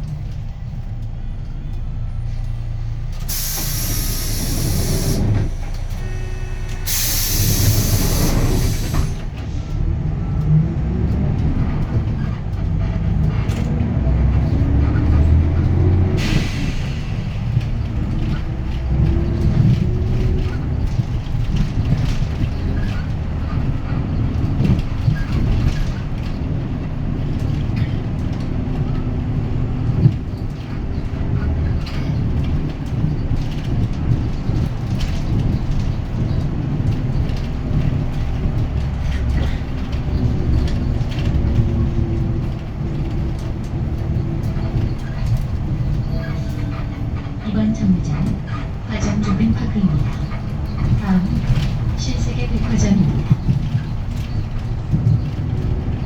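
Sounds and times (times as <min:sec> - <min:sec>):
bus diesel engine: 0:00.0 - 0:56.0
compressed air hisses: 0:03.3 - 0:05.5, 0:06.9 - 0:09.2.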